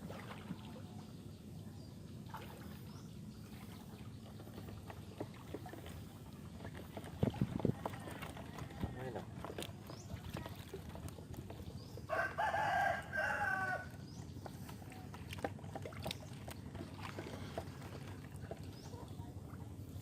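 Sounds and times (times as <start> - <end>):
rooster crowing: 12.1 - 13.9.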